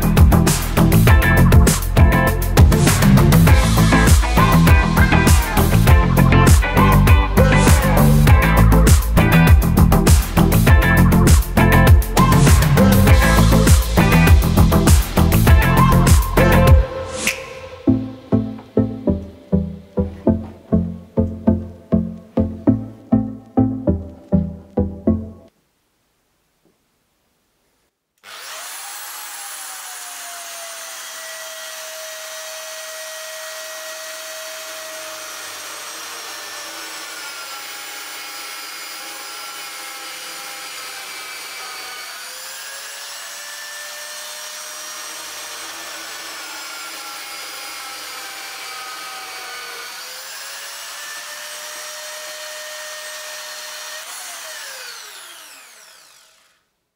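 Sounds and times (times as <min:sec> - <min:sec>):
electric drill motor whining: 0:28.2 - 0:56.7.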